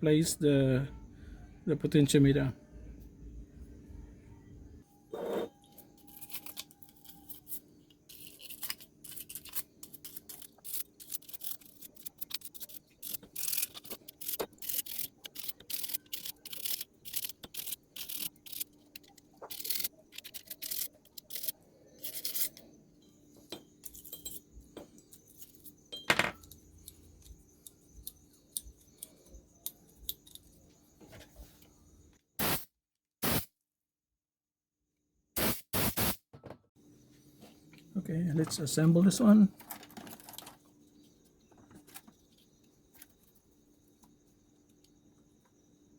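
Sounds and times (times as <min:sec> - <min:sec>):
faint steady hum: 0:00.1 - 0:32.2
small tools clicking and scraping: 0:05.1 - 0:31.3, 0:39.5 - 0:40.8.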